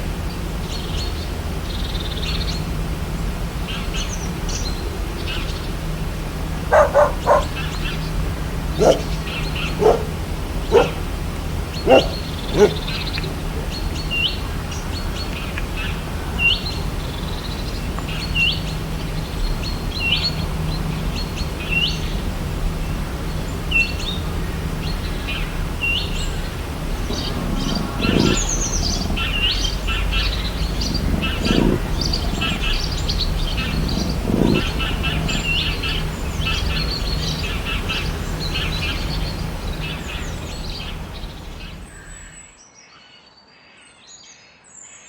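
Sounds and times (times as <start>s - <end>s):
several birds chirping: 0.0s - 42.5s
dog barking: 6.6s - 14.5s, 20.2s - 41.9s.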